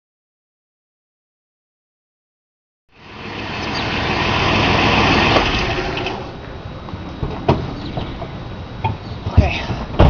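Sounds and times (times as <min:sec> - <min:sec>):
car pulling up: 0:03.0 - 0:09.2.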